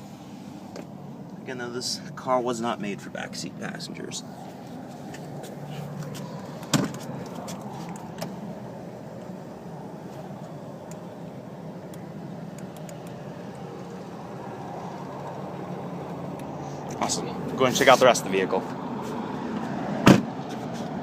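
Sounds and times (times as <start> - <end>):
sharp thump from car body: 6.6 - 7.1, 20.0 - 20.4.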